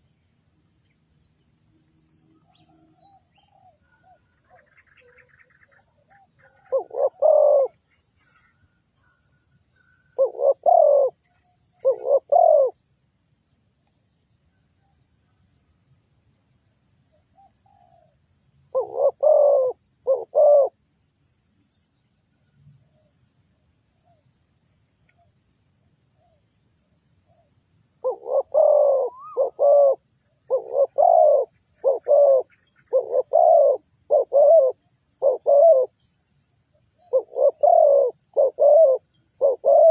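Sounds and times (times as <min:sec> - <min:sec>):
small birds chirping: 0:00.0 - 0:39.9
dove cooing: 0:03.0 - 0:08.4, 0:10.2 - 0:12.8, 0:17.4 - 0:20.8, 0:27.3 - 0:35.9, 0:37.0 - 0:39.9.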